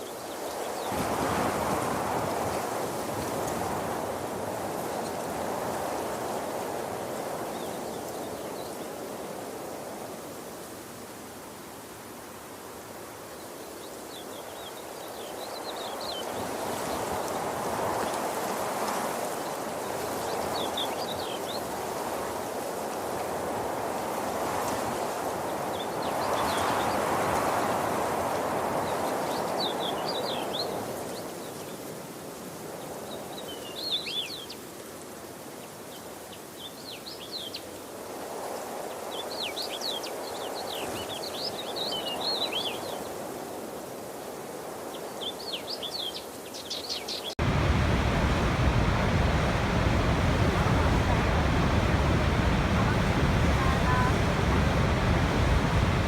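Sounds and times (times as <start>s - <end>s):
small birds chirping: 45.3s - 56.0s
rushing water: 47.3s - 56.0s.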